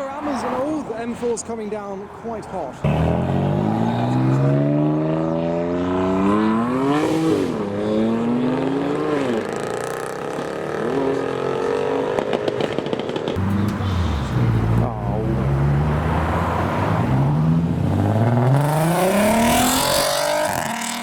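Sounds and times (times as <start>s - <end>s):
exhaust crackles: 7.1s - 21.0s
car engine accelerating hard: 13.4s - 21.0s.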